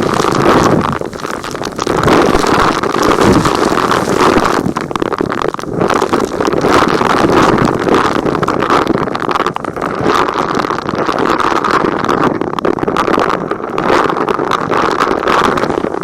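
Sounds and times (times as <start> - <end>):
grit rattling in vacuum: 0.0 - 11.0.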